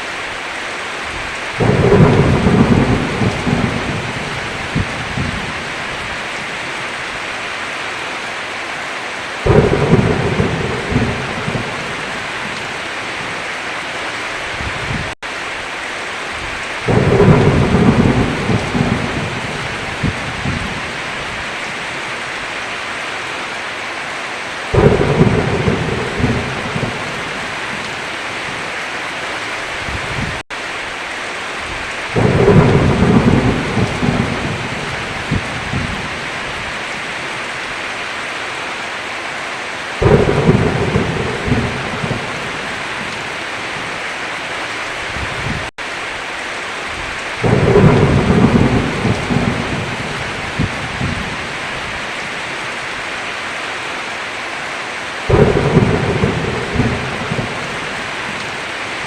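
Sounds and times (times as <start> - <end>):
heavy rain falling: 0.0 - 59.0
thunder rumbling: 1.2 - 6.5, 9.4 - 13.4, 16.4 - 21.8, 24.7 - 28.7, 31.7 - 36.8, 40.0 - 44.0, 46.9 - 52.0, 55.3 - 59.0.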